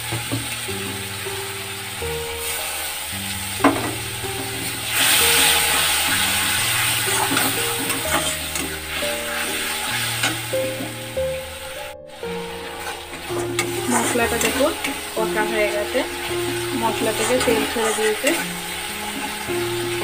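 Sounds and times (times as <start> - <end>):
background music: 0.0 - 20.0
paste sizzling in hot oil: 0.0 - 20.0
spatula knocking on pan: 3.6 - 4.8.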